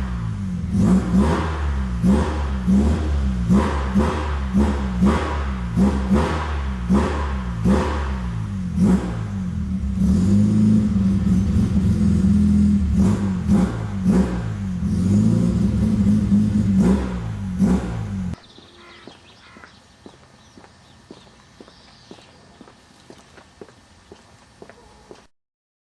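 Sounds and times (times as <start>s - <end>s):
rotary engine revving: 0.0s - 18.4s.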